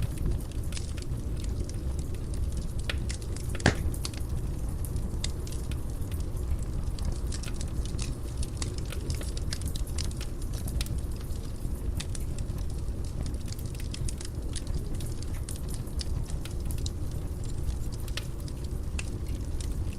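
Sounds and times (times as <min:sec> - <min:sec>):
fire crackling in a fireplace: 0:00.0 - 0:19.9
loud pop: 0:03.6 - 0:04.0.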